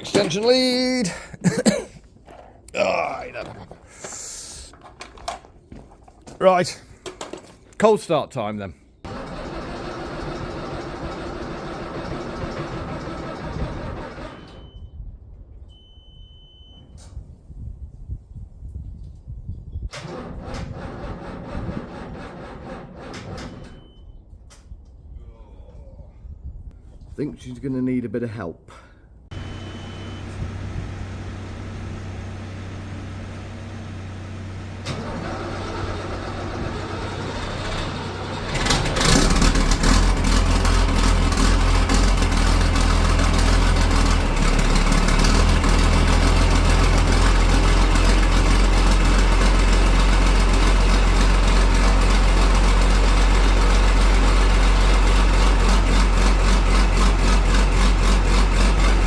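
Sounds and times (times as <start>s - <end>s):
diesel tractor engine starting: 0.0s - 1.4s, 9.0s - 14.9s, 19.9s - 24.0s, 29.3s - 59.0s.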